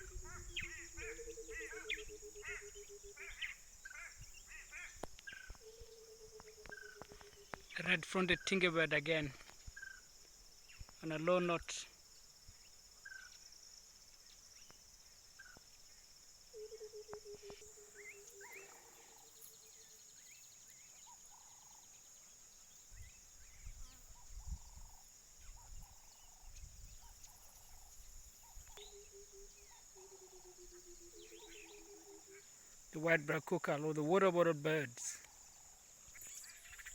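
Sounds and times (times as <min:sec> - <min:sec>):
high insect drone: 0:00.0 - 0:36.9.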